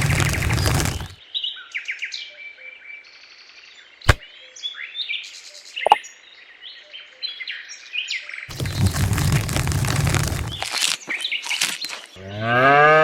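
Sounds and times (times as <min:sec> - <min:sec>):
small birds chirping: 0:08.5 - 0:12.3.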